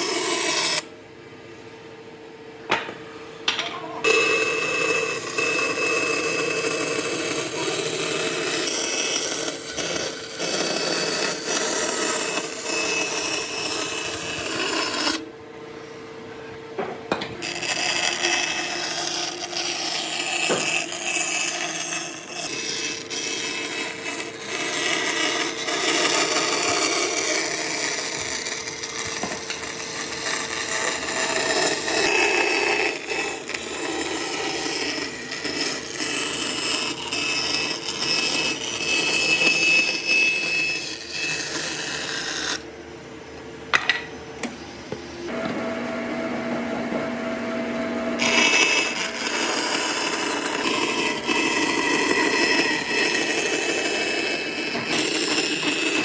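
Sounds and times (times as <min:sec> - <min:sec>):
power tool cutting wood: 0:00.0 - 0:00.9, 0:04.0 - 0:15.2, 0:17.4 - 0:42.6, 0:45.3 - 0:56.0.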